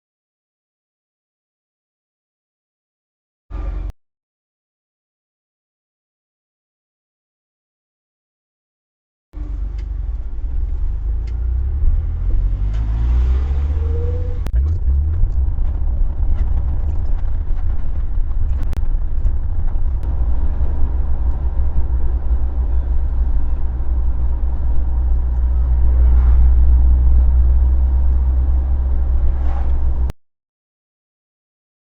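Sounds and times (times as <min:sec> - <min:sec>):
car engine and road noise: 0:03.5 - 0:03.9, 0:09.4 - 0:30.2.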